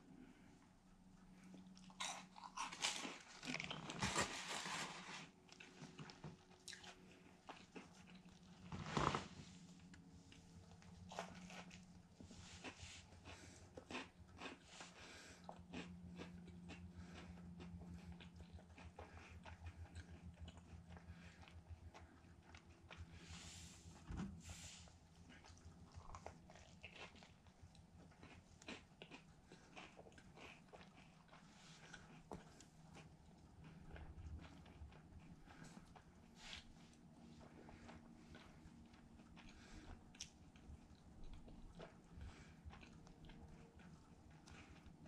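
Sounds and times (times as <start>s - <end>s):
low steady hum: 0.0s - 45.0s
soft chewing: 0.0s - 45.0s
crunching of fried breading: 1.7s - 9.0s, 10.7s - 23.2s, 25.2s - 36.6s.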